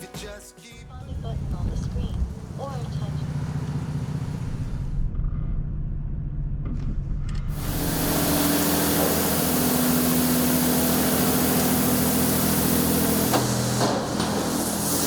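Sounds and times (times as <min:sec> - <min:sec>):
low machine hum: 0:01.0 - 0:05.2, 0:07.5 - 0:15.0
high-pressure water spray hissing: 0:01.9 - 0:04.9, 0:07.5 - 0:15.0.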